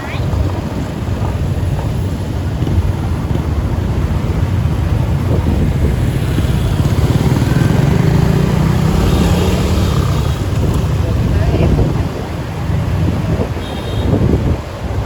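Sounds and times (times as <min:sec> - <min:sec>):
motorbike engine running: 0:00.4 - 0:12.2.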